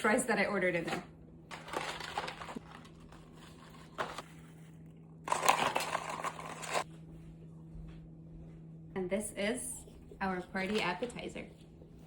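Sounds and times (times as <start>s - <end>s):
paper crinkling and rustling: 1.5s - 6.9s.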